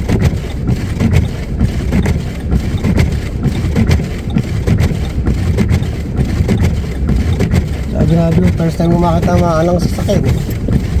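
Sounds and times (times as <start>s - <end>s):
truck cabin low rumble: 0.0s - 11.0s.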